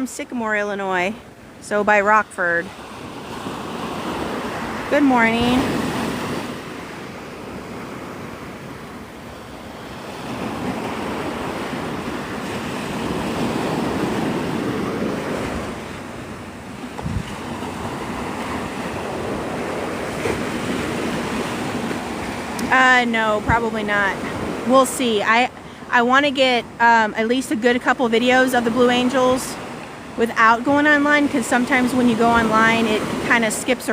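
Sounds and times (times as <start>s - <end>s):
wind on microphone: 2.4s - 25.3s
surf washing onto beach: 2.4s - 33.9s.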